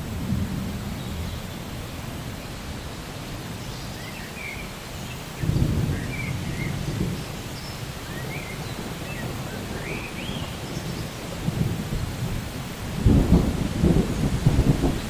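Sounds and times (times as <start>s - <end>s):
low thunder roll: 0.0s - 2.4s, 5.4s - 7.5s, 8.1s - 15.0s
steady rainfall: 0.0s - 15.0s.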